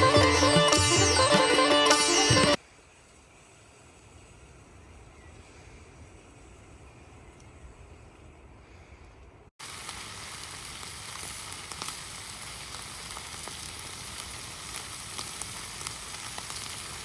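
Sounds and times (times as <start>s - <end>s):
meat sizzling in a pan: 9.6s - 17.0s.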